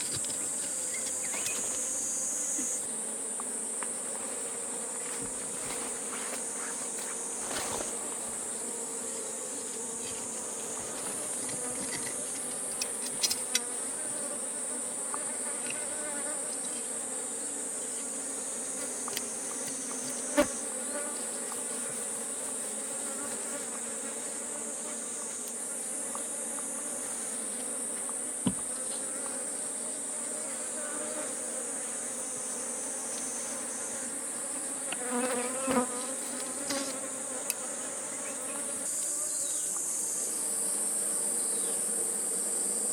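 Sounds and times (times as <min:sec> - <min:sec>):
high-pitched insect chorus: 0:00.0 - 0:03.0
bees buzzing: 0:00.0 - 0:42.9.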